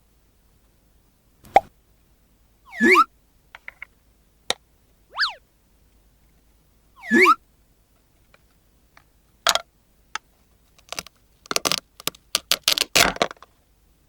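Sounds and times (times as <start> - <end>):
cartoon sliding pitch effect: 2.7 - 3.1, 5.1 - 5.4, 7.0 - 7.4
plastic pieces clicking: 10.8 - 13.4.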